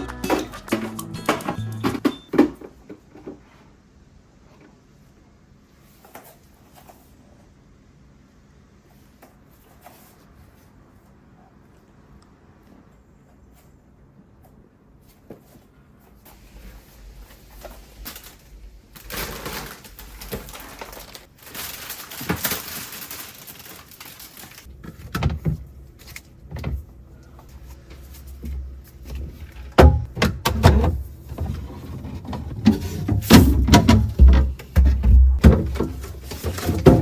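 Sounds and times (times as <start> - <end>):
knocks and thumps: 28.4 - 37.0.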